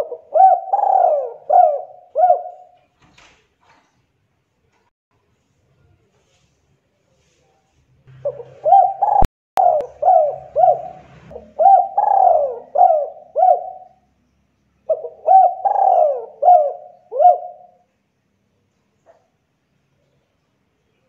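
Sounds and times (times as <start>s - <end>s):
dove cooing: 0.0s - 2.8s, 8.1s - 14.0s, 14.9s - 17.8s.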